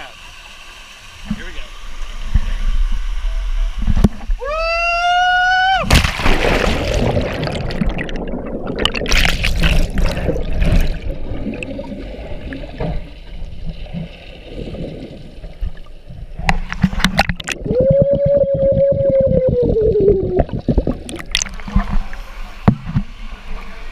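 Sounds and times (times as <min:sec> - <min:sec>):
person whooping: 0:04.4 - 0:05.9, 0:17.7 - 0:20.5
water rushing and splashing: 0:05.8 - 0:23.9.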